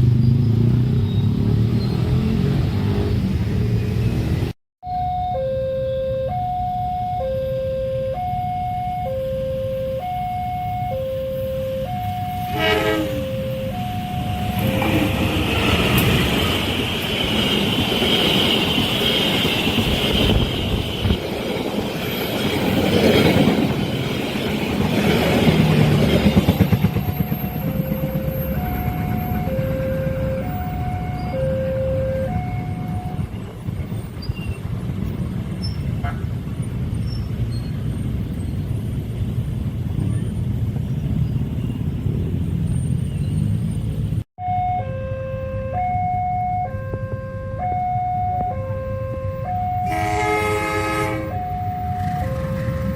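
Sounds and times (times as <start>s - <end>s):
level crossing alarm two tones: 4.8s - 15.2s, 27.6s - 33.3s, 44.4s - 50.2s, 51.2s - 52.9s
train horn blast: 11.4s - 15.4s, 48.6s - 52.9s
train wheels rushing on rails: 14.4s - 29.9s.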